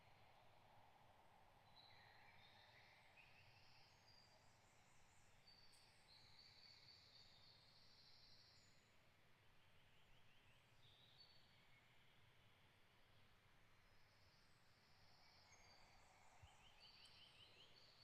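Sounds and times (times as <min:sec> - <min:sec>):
songbirds chirping and trilling: 0:15.1 - 0:18.0.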